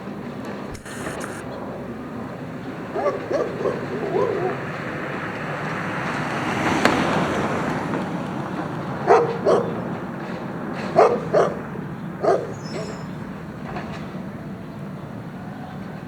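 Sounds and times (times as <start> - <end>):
engine and street noise: 0.0 - 16.0
sharp click: 0.7 - 1.4
dog barking: 2.9 - 4.9, 9.0 - 9.9, 10.8 - 13.1.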